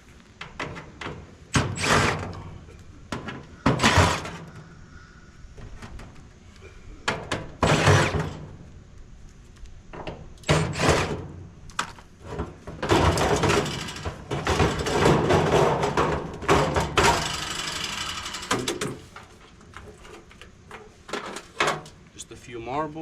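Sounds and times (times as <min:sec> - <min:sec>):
metal rattling and scraping: 0:00.4 - 0:04.6, 0:07.0 - 0:08.7, 0:10.0 - 0:22.0
sheet metal banging: 0:12.8 - 0:18.9.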